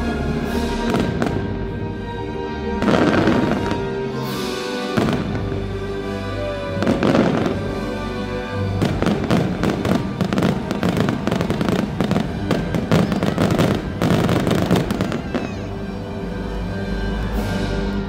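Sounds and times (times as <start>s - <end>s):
music: 0.0s - 18.0s
fireworks bangs and crackle: 0.7s - 1.8s, 2.8s - 15.8s.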